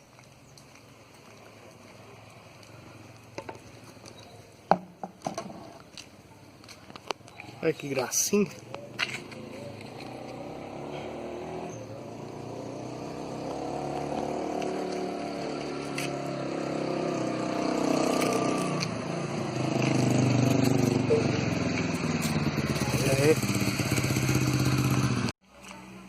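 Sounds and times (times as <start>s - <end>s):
motor vehicle engine running: 8.6s - 25.9s.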